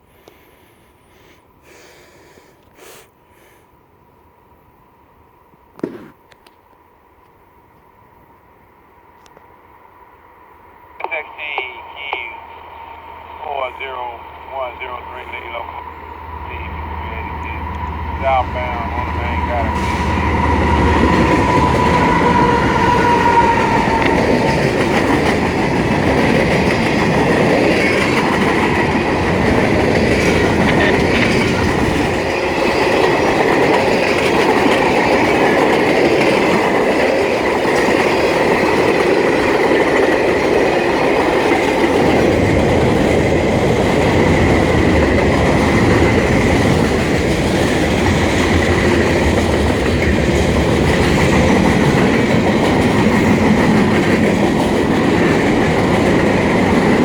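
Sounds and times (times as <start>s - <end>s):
freight train wheels clacking: 11.6s - 57.0s.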